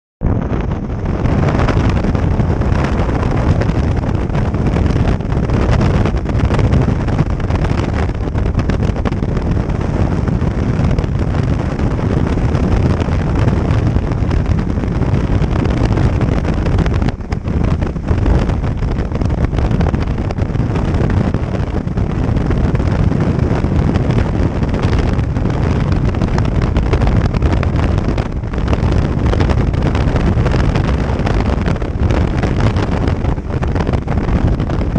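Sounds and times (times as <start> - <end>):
jet ski engine: 0.2 - 34.9
wind buffeting microphone: 0.2 - 34.9.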